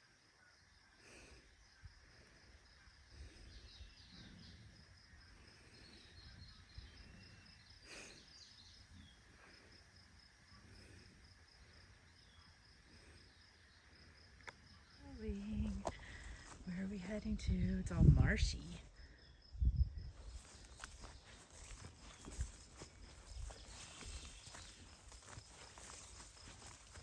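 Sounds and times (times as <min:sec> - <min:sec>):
faint bird chirps: 0:00.0 - 0:09.4, 0:19.0 - 0:27.0
pulsing high insect chirp: 0:00.0 - 0:27.0
low rumble of wind: 0:15.0 - 0:27.0.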